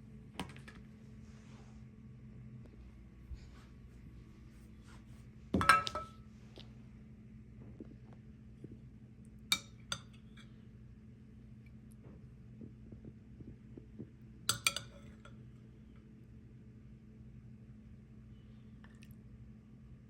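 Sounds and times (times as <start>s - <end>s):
steady low hum: 0.0s - 20.0s
dishes and utensils clinking: 5.6s - 6.2s, 14.5s - 15.4s.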